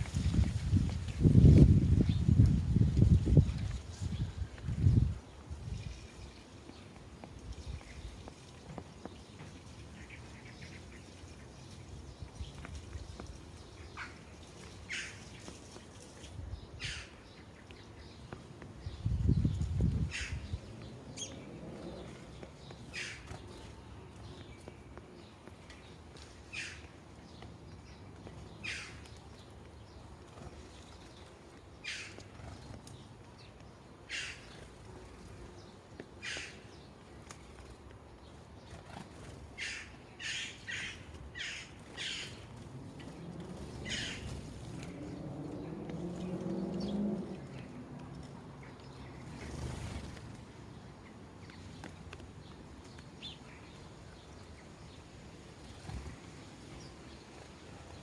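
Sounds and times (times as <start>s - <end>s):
sparrows chirping: 0.0s - 58.0s.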